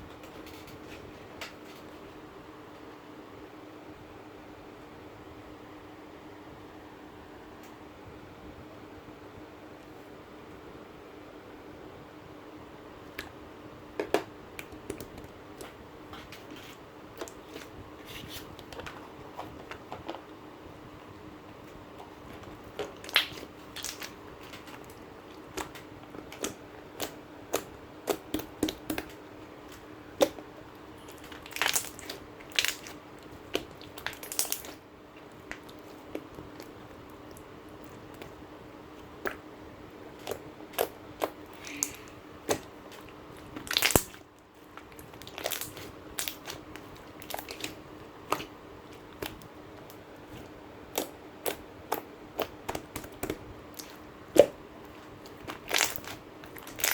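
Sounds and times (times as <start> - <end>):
slime squishing and popping: 22.6 - 29.2, 30.1 - 36.8, 40.2 - 56.9.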